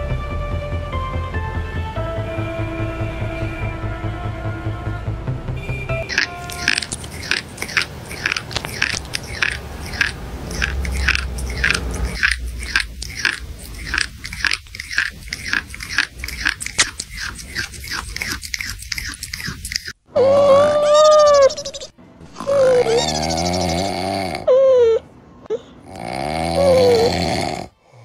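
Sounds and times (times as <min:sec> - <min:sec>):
potato chips being chewed: 0:06.1 - 0:20.0.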